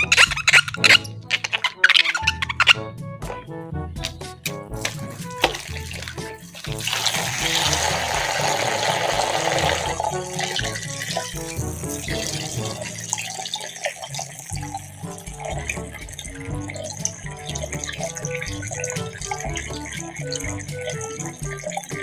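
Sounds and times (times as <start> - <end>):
background music with steady beat: 0.0 - 22.0
water running from a tap: 4.8 - 22.0.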